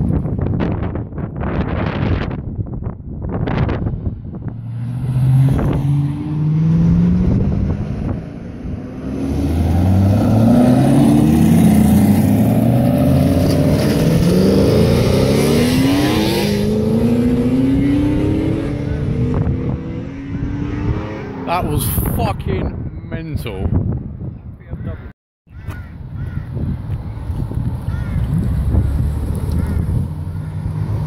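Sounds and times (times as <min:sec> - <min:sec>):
cars accelerating hard: 0:04.5 - 0:21.7.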